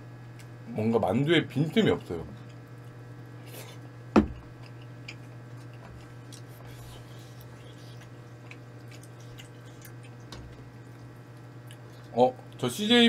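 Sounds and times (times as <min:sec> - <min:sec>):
steady low hum: 0:00.0 - 0:13.0
person chewing food: 0:02.4 - 0:12.6.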